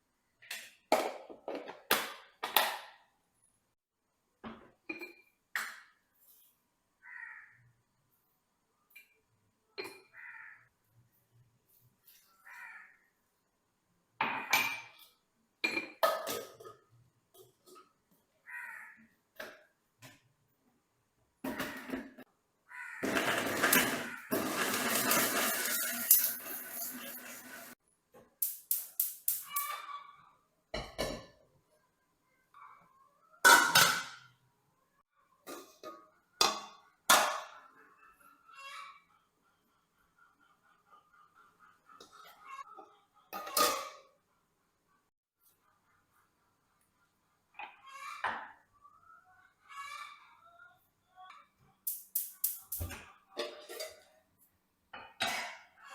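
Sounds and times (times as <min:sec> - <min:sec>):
crows cawing: 0:07.0 - 0:07.7, 0:10.1 - 0:10.7, 0:12.4 - 0:13.1, 0:18.4 - 0:19.1, 0:22.7 - 0:23.0
metal pots and utensils clattering: 0:14.2 - 0:18.0, 0:23.0 - 0:27.8, 0:33.4 - 0:34.3, 0:43.3 - 0:44.2, 0:51.9 - 0:54.2.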